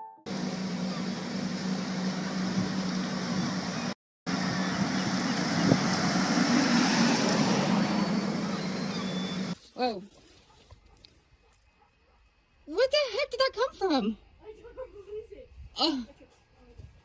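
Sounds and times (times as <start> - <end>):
car engine hum with rushing hiss: 0.3 - 9.6.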